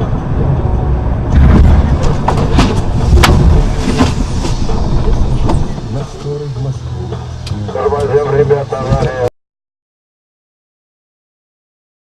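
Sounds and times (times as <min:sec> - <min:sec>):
loud vehicle rumble: 0:00.0 - 0:09.4
sharp knocks and bangs: 0:01.3 - 0:06.0.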